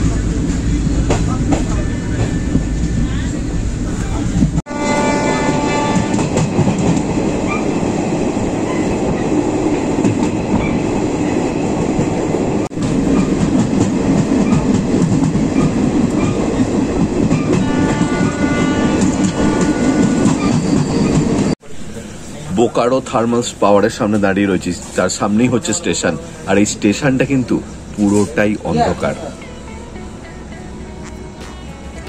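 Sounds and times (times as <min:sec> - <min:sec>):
train rumbling on rails: 0:00.0 - 0:32.0
held high multi-pitch horn tone: 0:04.7 - 0:06.4, 0:17.5 - 0:21.4.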